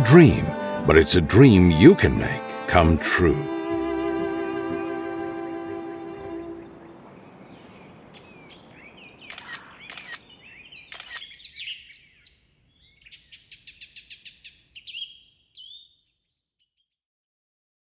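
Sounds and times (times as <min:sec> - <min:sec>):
small birds chirping: 0:07.5 - 0:16.9
quick bird trill: 0:09.2 - 0:11.4
sharp clicks: 0:09.3 - 0:10.3, 0:10.9 - 0:11.2.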